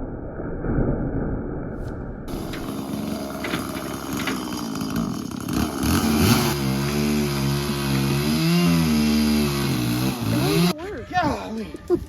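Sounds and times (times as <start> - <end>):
engine speeding up: 2.3 - 10.7.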